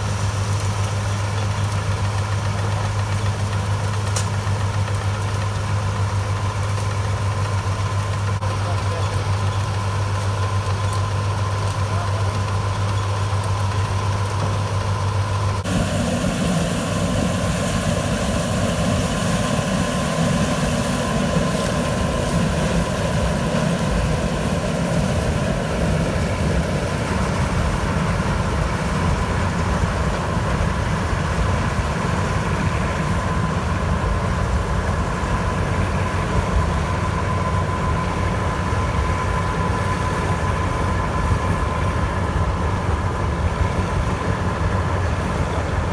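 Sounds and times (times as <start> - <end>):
combine harvester engine running: 0.0 - 45.9
thin high whine: 15.6 - 29.5.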